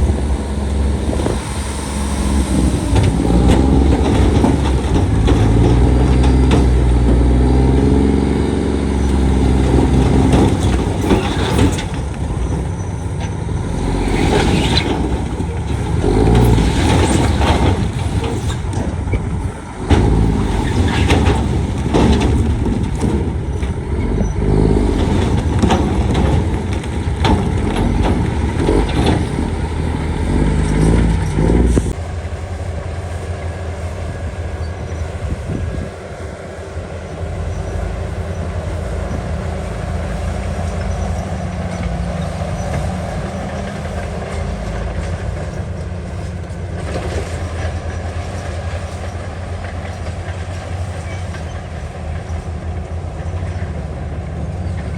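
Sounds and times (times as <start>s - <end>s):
clanks of steel and rock: 0.0s - 32.0s
diesel machinery engine drone: 0.0s - 54.9s.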